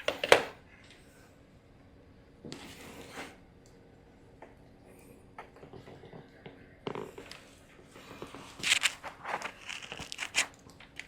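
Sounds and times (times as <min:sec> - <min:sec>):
scraping and crackling handling noises: 0:07.0 - 0:11.0.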